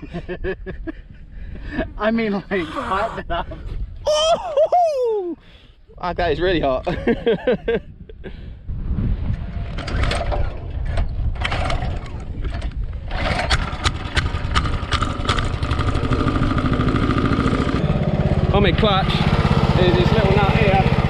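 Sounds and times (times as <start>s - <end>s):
small motorbike engine running: 13.1s - 21.0s.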